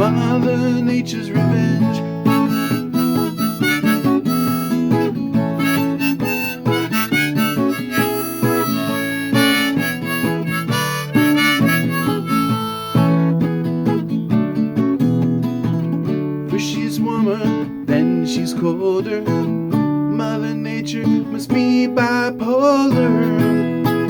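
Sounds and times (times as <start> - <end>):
strummed acoustic guitar: 0.0 - 24.0
harmonica solo: 1.7 - 13.6.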